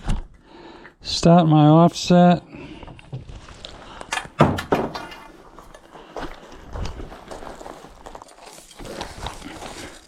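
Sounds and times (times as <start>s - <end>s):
metal knocks and clanks: 4.2s - 5.3s.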